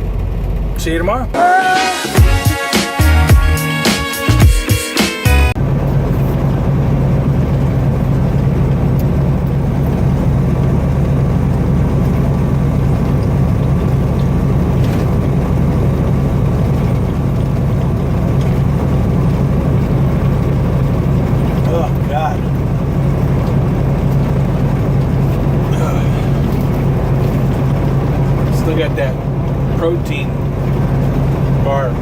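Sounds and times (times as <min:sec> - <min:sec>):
diesel truck engine idling: 0:00.0 - 0:32.0.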